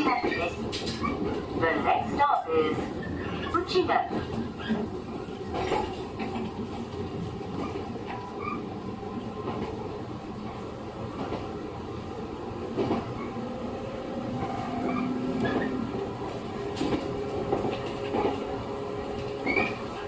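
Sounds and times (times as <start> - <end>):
clacks over rail joints: 0.0 - 4.8, 5.4 - 8.6, 12.7 - 13.4, 14.4 - 20.0
train wheels rumbling on rail: 0.0 - 20.0.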